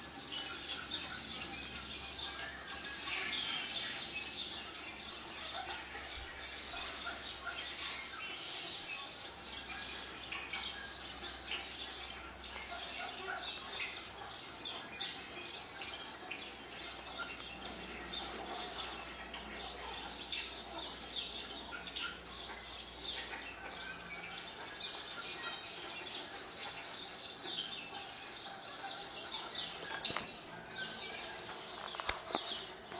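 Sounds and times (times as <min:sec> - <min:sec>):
small birds chirping on television: 0:00.0 - 0:32.9.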